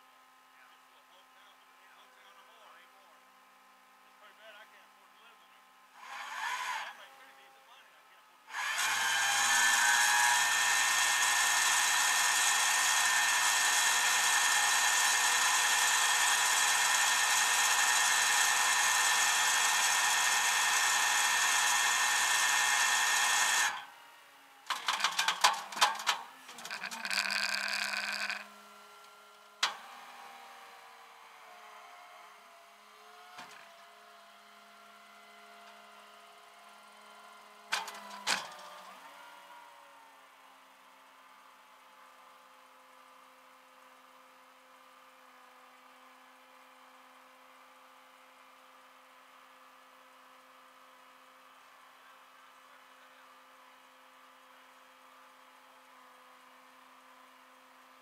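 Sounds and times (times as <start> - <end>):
power tool running: 6.0 - 7.1, 8.5 - 40.2.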